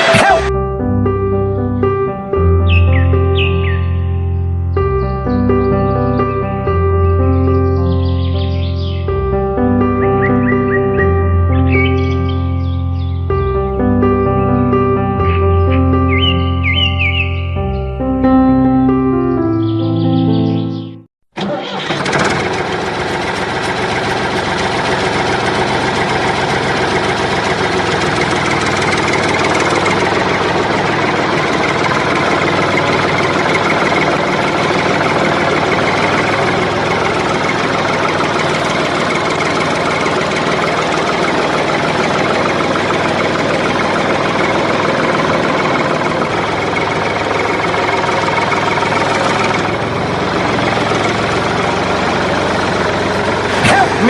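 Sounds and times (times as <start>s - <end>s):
engine idling: 21.4s - 54.0s.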